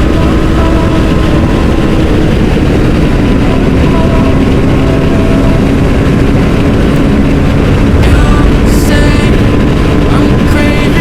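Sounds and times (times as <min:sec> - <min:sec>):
wind rushing on microphone: 0:00.0 - 0:11.0.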